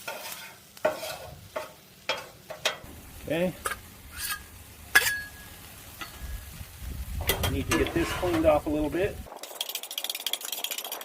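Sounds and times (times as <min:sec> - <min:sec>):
metal spatulas scraping griddle: 0:00.0 - 0:02.9, 0:03.6 - 0:06.3, 0:07.2 - 0:08.8
food sizzling: 0:00.0 - 0:11.0
sharp metal clang: 0:03.6 - 0:05.4.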